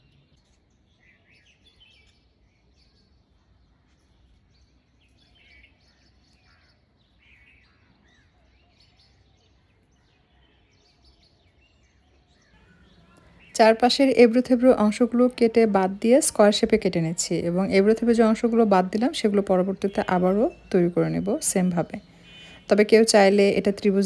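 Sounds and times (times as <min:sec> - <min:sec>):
faint bird chirps: 0:00.0 - 0:24.0
low steady hum: 0:12.7 - 0:24.0.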